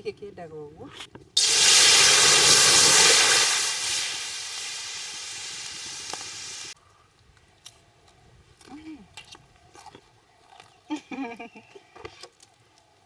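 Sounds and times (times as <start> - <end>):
sizzling from hot cooking pot: 1.4 - 6.8.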